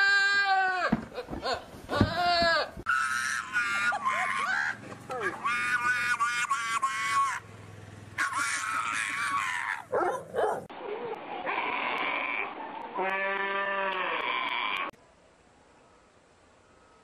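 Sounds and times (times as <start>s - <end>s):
animal harsh cry: 10.8s - 14.9s
animals bleating: 11.4s - 14.9s.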